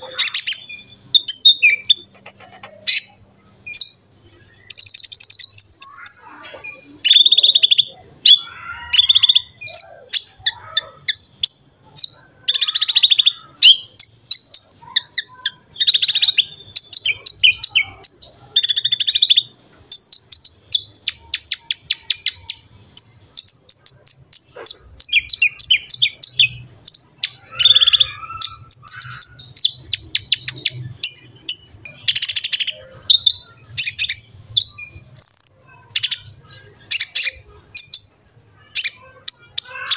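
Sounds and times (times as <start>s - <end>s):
bird singing fast trills: 0.0s - 39.9s.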